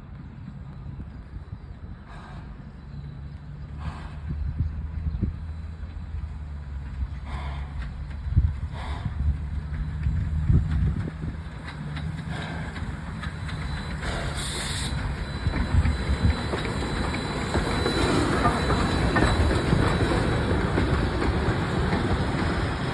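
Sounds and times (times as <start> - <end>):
train wheels clattering on rails: 3.6 - 22.9
steam hiss: 11.9 - 22.9.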